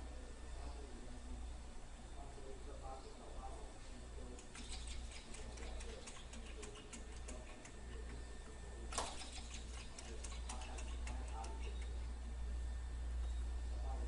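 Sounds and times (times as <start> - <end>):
sharp click: 8.9 - 11.9.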